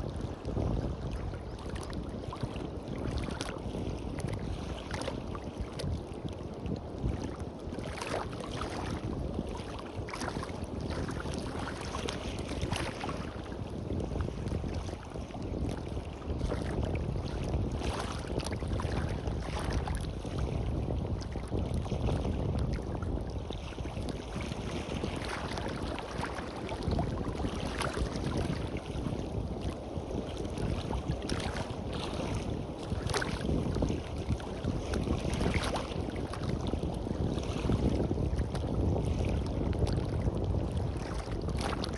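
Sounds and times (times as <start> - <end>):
wind buffeting microphone: 0.0 - 41.9
sea waves splashing on beach: 23.5 - 40.0.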